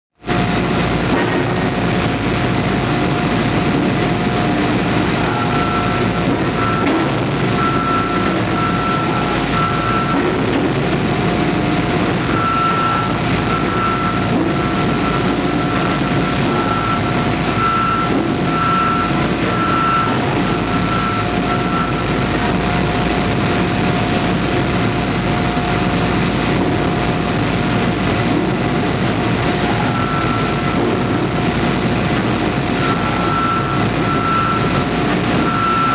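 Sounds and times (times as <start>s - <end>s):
hydraulic press machine noise: 0.2s - 35.9s
high tone pulses: 5.0s - 10.9s, 11.7s - 22.3s, 29.6s - 31.3s, 32.7s - 35.9s.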